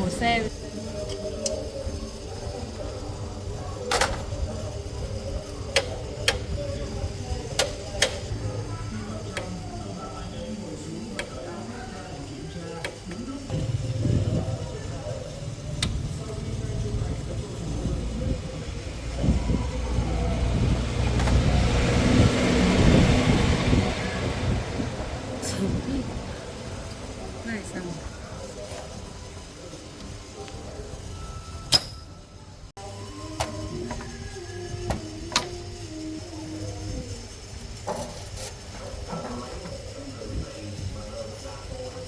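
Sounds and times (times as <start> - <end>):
vehicle engine rumbling: 1.6 - 32.7.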